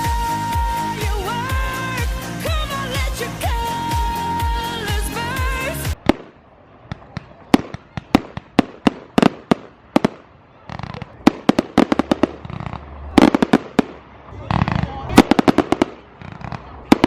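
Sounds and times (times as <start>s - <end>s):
fireworks bangs and cracks: 5.9s - 17.0s.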